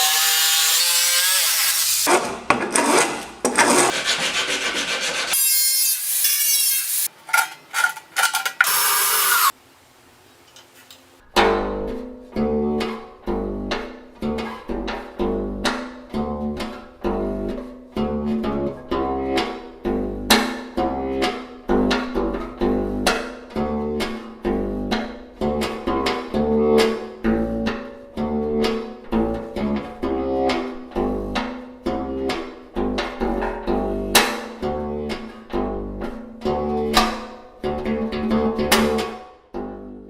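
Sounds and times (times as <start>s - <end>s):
sawing and rasping on wood: 0.0s - 7.1s
power tool grinding: 0.0s - 9.6s
plucked acoustic bass low notes: 11.2s - 40.0s.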